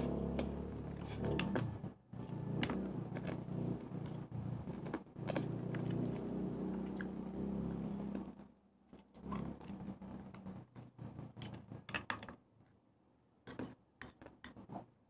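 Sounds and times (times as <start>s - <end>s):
crunchy chewing: 0.4s - 7.2s, 8.9s - 11.6s.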